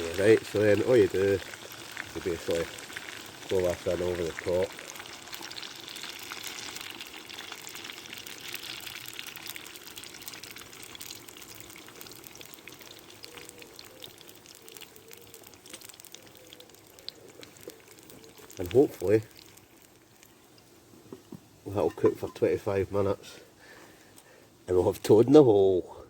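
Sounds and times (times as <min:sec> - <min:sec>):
batter sizzling in hot oil: 0:00.0 - 0:20.8.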